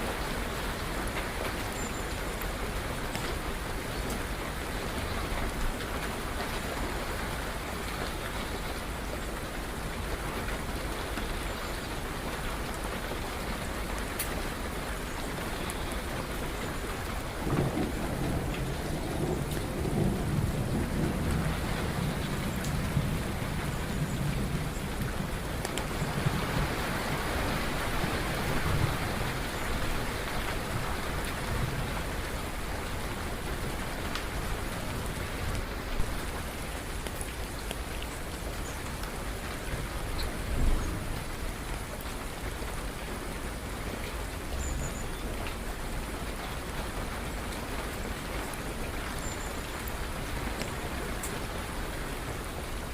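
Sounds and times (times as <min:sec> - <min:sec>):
steady rain falling: 0:00.0 - 0:52.9
thunder rumbling: 0:17.4 - 0:36.3.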